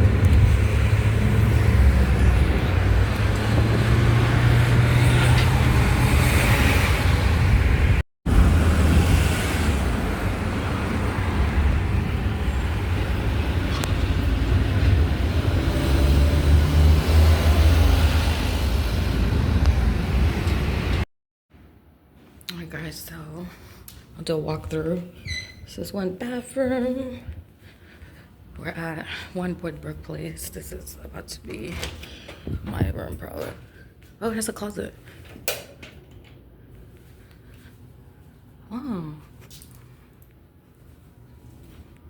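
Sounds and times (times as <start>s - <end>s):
road vehicle low rumble: 0.0s - 21.1s.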